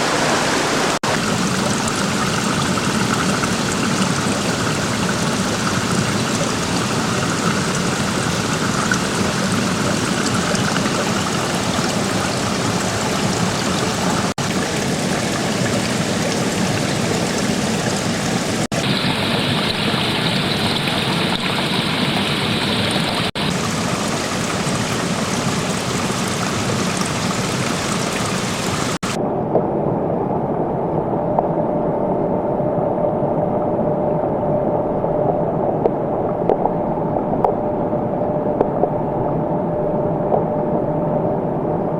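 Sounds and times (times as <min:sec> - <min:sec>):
rushing stream water: 0:00.0 - 0:29.2.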